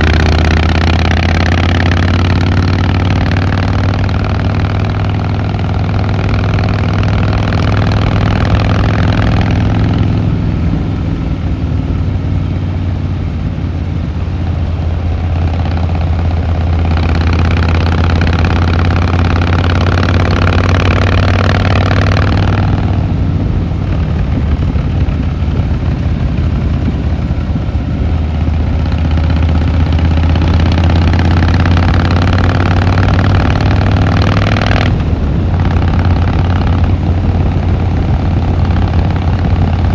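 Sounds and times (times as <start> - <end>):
motorcycle engine rumbling: 0.0 - 39.9.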